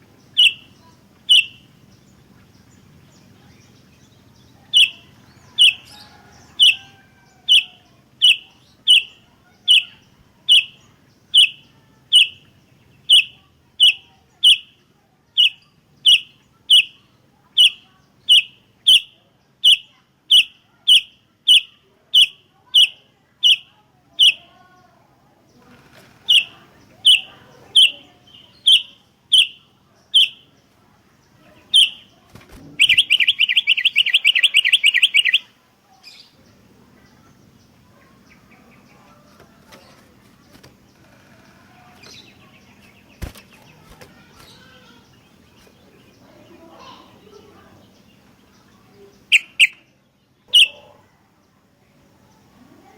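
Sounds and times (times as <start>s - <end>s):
bird rapid chattering trill: 0.3s - 1.9s, 4.5s - 14.8s, 15.4s - 24.5s, 26.2s - 30.6s, 31.6s - 36.3s, 41.7s - 49.9s, 50.5s - 51.0s
bird sharp call notes: 30.2s - 30.5s, 31.7s - 32.1s, 32.8s - 35.5s, 49.3s - 49.9s, 50.5s - 50.9s.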